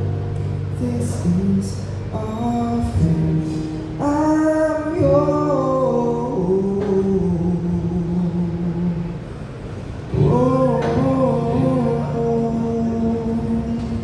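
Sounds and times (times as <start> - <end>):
person singing long notes: 10.1 - 14.0.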